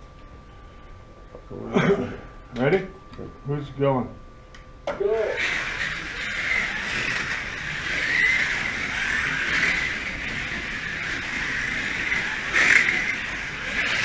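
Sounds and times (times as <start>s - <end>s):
slot car motors whining: 5.0s - 14.0s.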